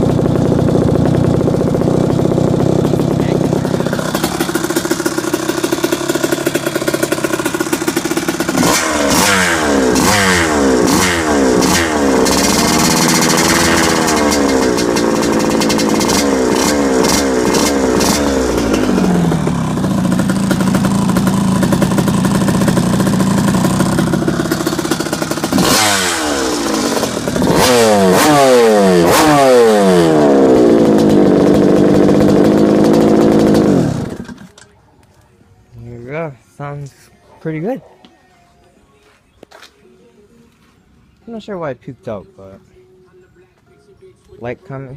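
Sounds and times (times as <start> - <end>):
dirt bike engine revving: 0.0 - 34.5.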